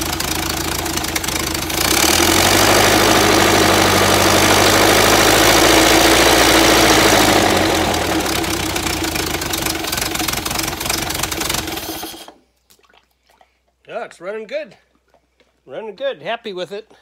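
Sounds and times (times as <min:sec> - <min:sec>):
engine running: 0:00.0 - 0:12.4.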